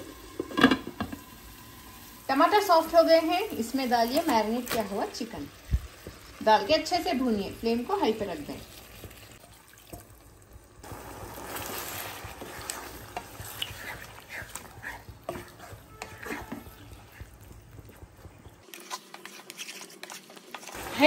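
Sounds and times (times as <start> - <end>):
food sizzling in a pan: 0.0 - 19.3, 20.0 - 21.0
spatula scraping a pan: 11.5 - 21.0.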